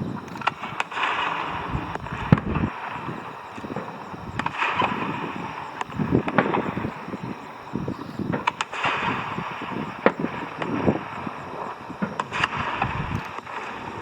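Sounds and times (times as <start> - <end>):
fireworks bangs and crackles: 0.0 - 14.0
wind noise on microphone: 0.0 - 14.0.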